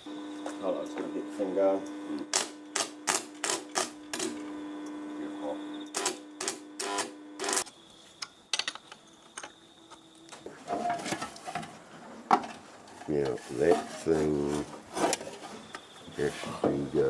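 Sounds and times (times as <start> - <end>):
steady hum: 0.0 - 8.5.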